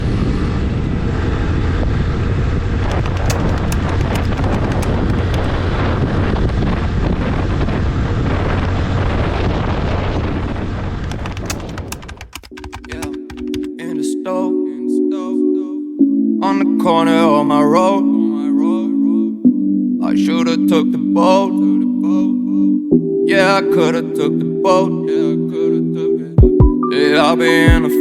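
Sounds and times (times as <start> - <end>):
motorcycle engine rumble: 0.0 - 12.2
wind buffeting microphone: 0.0 - 12.4
crackles: 2.8 - 5.8, 9.0 - 13.7.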